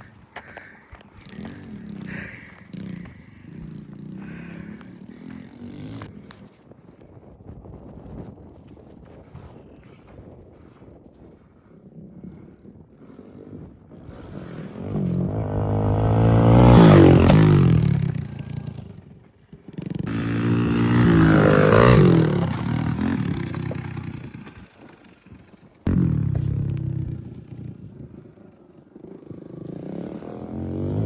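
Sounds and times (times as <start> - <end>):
pit bike engines revving: 0.0 - 6.5, 13.9 - 31.0.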